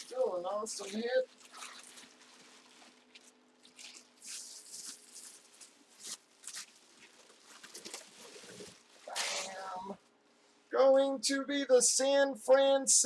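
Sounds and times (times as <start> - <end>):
low steady hum: 0.0 - 13.0
packaging rustling and scraping: 1.6 - 9.7.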